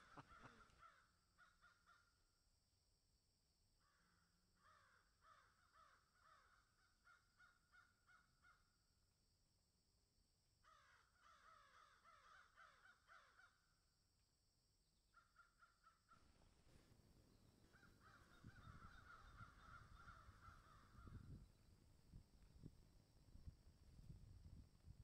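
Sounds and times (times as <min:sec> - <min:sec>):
faint harsh bird caws: 0:00.0 - 0:02.2, 0:03.8 - 0:08.8, 0:10.6 - 0:13.8, 0:15.1 - 0:16.6, 0:17.7 - 0:21.4.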